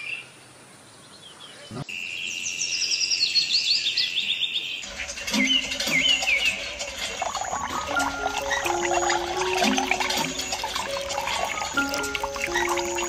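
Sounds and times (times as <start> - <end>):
birds chirping: 0.0 - 13.0
steady high tone: 7.6 - 13.0
simple melody of held notes: 7.9 - 13.0.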